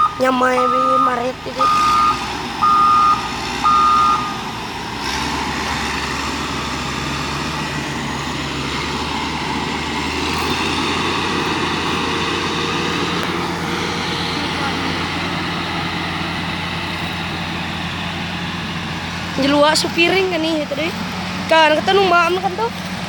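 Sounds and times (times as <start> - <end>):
truck reversing alarm beeps: 0.0 - 4.6
truck engine running: 0.0 - 23.0.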